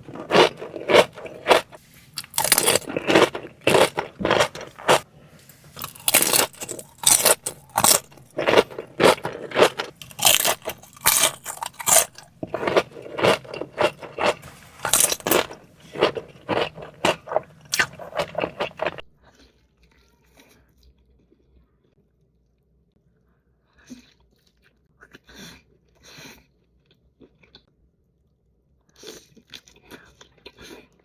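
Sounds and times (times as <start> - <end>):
crunchy chewing of food: 0.0 - 22.3, 28.8 - 31.0.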